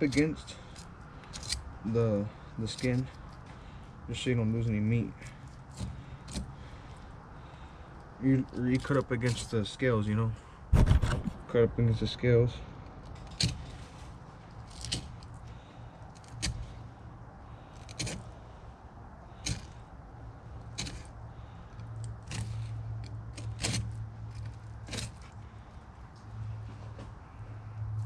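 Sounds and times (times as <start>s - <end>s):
steady low hum: 0.0s - 28.0s
knife scraping scales: 17.8s - 18.3s, 19.4s - 19.8s.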